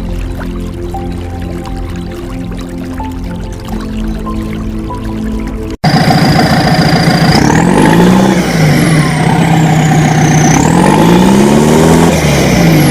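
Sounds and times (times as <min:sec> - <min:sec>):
high whine: 0:04.4 - 0:12.9
diesel engine running: 0:05.8 - 0:12.9.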